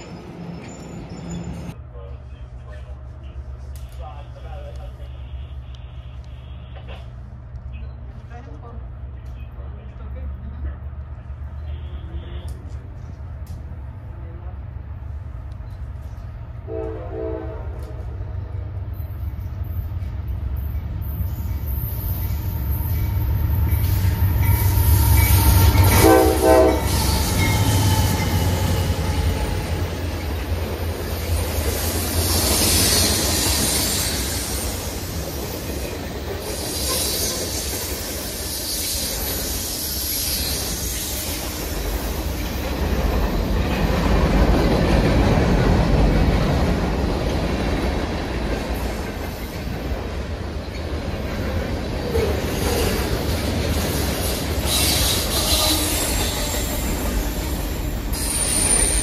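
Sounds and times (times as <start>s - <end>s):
train horn blasts: 16.6s - 18.1s, 25.8s - 27.6s.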